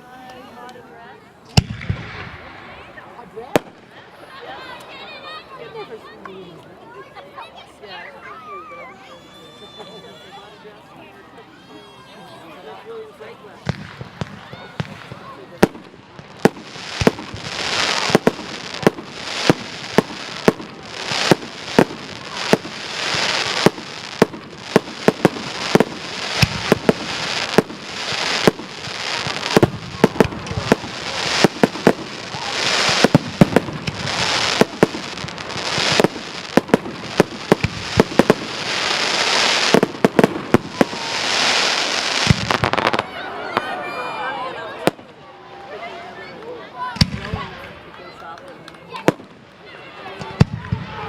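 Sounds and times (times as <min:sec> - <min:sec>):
fireworks bangs: 0:01.5 - 0:04.8, 0:13.6 - 0:43.8, 0:46.9 - 0:47.8, 0:48.9 - 0:49.4, 0:50.1 - 0:51.0
crackling hiss of fireworks: 0:01.5 - 0:05.3, 0:13.6 - 0:45.2, 0:49.0 - 0:51.0.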